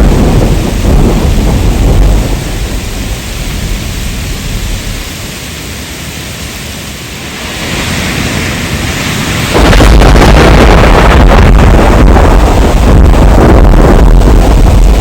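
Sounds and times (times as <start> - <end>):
deep rumble: 0.0 - 5.3, 9.1 - 15.0
heavy downpour: 0.0 - 15.0
rain hiss: 0.0 - 15.0.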